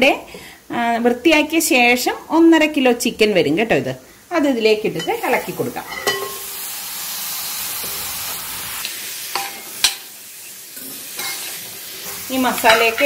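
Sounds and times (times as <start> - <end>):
chicken sizzling in oil: 4.2 - 13.0.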